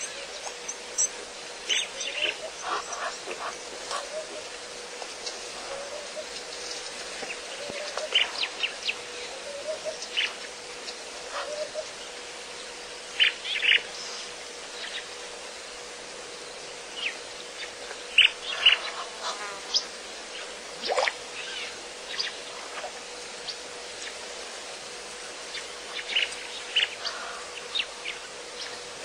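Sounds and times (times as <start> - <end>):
birds chirping: 0.0 - 12.2
faint steady hum: 0.0 - 29.0
insect buzz: 0.0 - 29.0.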